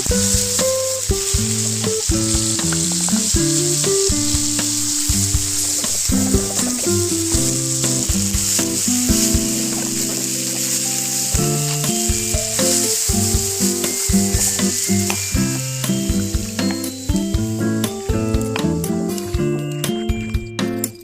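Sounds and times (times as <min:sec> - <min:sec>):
curry sizzling in pan: 0:00.0 - 0:20.0
background music with held notes: 0:00.0 - 0:21.0.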